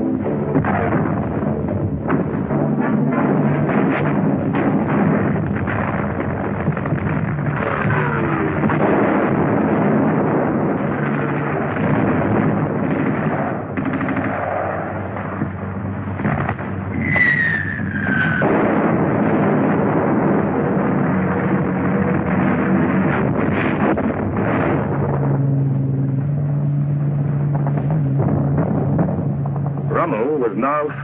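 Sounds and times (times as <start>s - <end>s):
gunfire and artillery: 0.0s - 26.4s, 27.3s - 31.0s
falling whistle: 17.0s - 18.4s.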